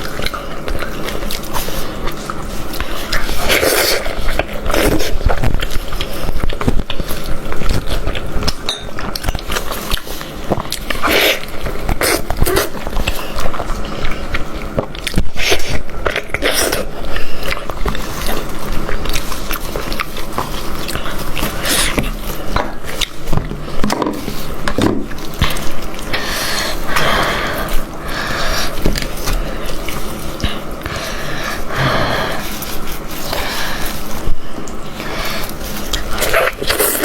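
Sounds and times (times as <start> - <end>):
chewing and biting: 0.0 - 31.6, 32.2 - 37.0.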